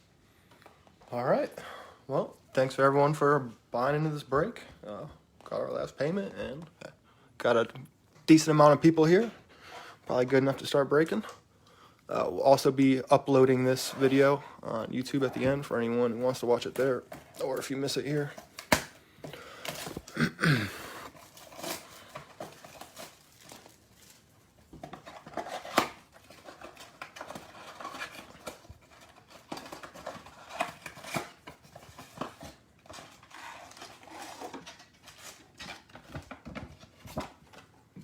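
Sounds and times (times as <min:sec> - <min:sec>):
plastic crinkling: 0:13.4 - 0:20.2, 0:20.9 - 0:37.8
cardboard tearing: 0:19.6 - 0:37.6.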